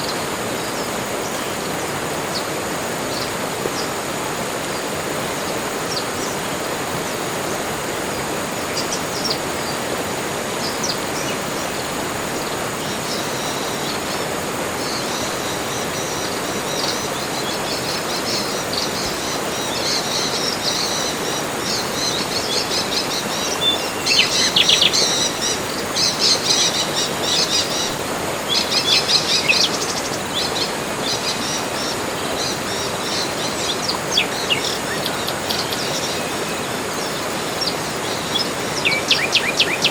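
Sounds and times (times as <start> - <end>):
steady rushing hiss: 0.0 - 39.9
wild birds calling and chirping: 10.6 - 39.9.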